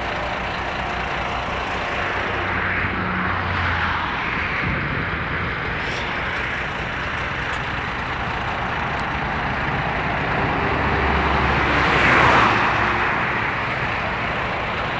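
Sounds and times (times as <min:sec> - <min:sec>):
road hiss: 0:00.0 - 0:11.8
heavy vehicle engine rumbling: 0:00.0 - 0:14.9.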